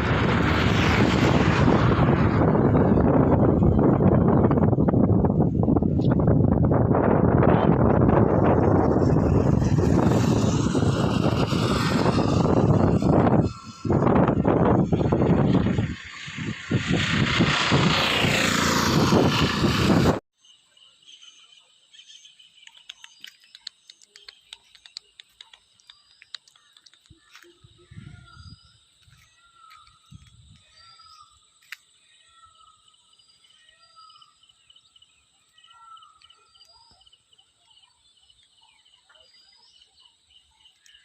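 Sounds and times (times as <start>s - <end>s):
higher bird chirps: 20.4s - 41.0s
bird calling: 21.2s - 41.0s
small clicks: 22.6s - 27.6s.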